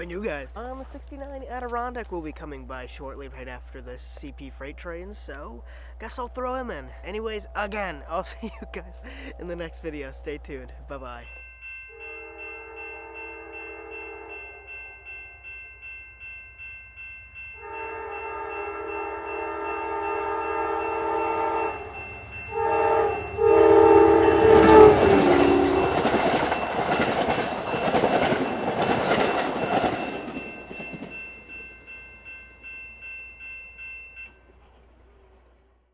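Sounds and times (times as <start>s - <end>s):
crossing bell dinging: 6.5s - 34.9s
train chime horn: 11.0s - 16.2s, 17.4s - 35.2s
wheels clattering over rails: 24.6s - 31.6s.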